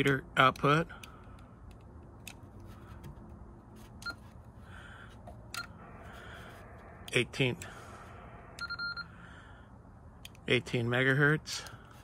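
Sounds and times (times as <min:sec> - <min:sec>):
low steady hum: 0:00.0 - 0:12.0
short beep: 0:08.6 - 0:09.1.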